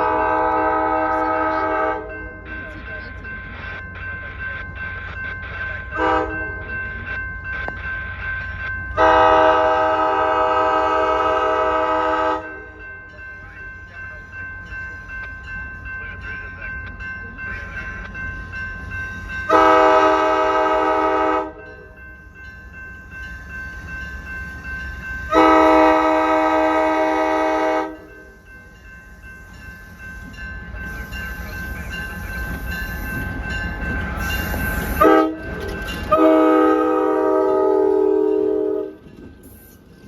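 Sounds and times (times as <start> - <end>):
locomotive air horn blasts: 0.0 - 2.1, 6.0 - 6.3, 9.0 - 12.6, 19.5 - 21.6, 25.3 - 28.1, 34.8 - 39.0
low rumble of train: 0.0 - 40.0.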